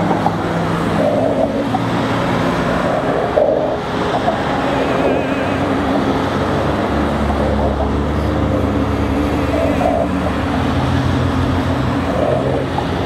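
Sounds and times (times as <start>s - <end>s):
road and tyre noise: 0.0s - 13.0s
truck engines running: 0.0s - 13.0s.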